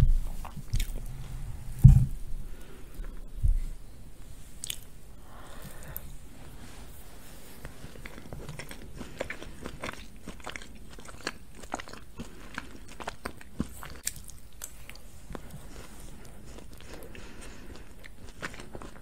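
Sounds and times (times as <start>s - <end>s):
chewing cake close to microphone: 0.2s - 1.1s, 7.6s - 19.0s
mouth clicks and smacks: 0.4s - 1.1s.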